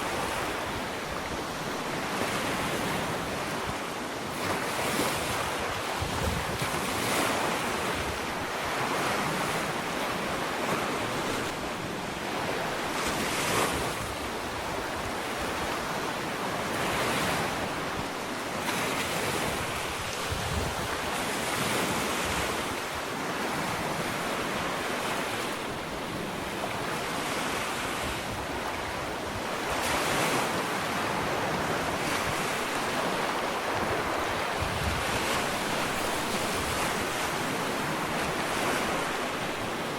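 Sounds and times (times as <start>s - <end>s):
waves breaking on beach: 0.0s - 39.9s
wind noise on microphone: 0.0s - 39.9s.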